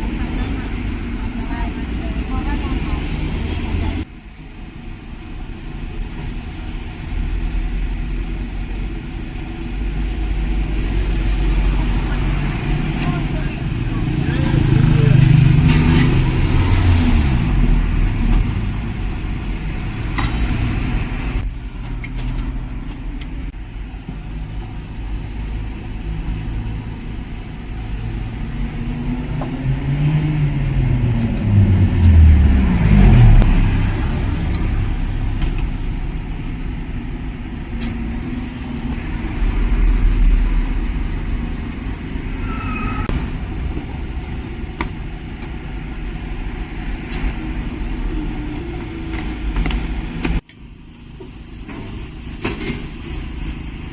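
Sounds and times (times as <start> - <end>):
cars passing and pulling away: 0.0 - 53.9.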